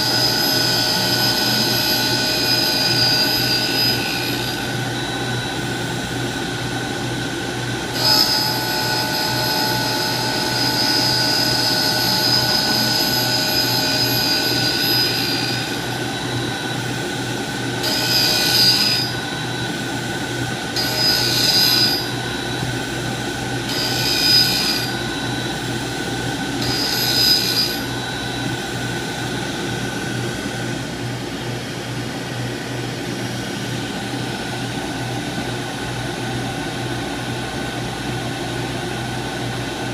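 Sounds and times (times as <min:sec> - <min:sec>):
grinding wheel grinding drill: 0:00.0 - 0:31.0
machine humming: 0:00.0 - 0:38.0.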